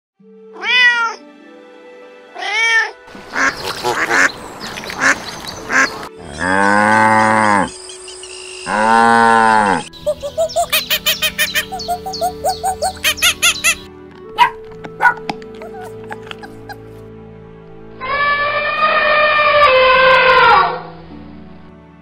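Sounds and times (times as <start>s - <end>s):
cat meowing: 0.6s - 1.2s, 2.4s - 3.0s
rough raspy calls: 3.3s - 7.8s, 8.6s - 16.9s
cow mooing: 6.2s - 7.8s, 8.7s - 9.9s
rapid chirping: 9.9s - 13.9s.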